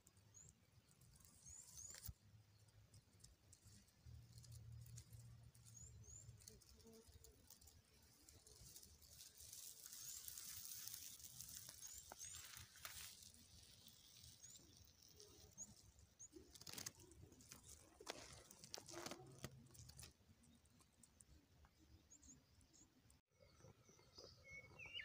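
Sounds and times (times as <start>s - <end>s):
soft rustles: 3.5s - 20.2s
high bird chirps: 23.4s - 25.0s.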